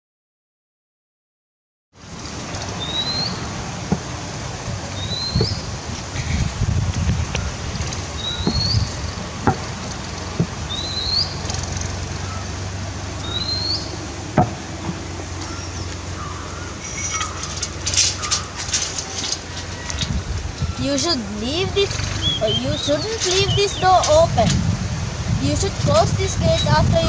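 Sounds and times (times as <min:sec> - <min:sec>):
low outdoor hum: 0:02.0 - 0:27.0.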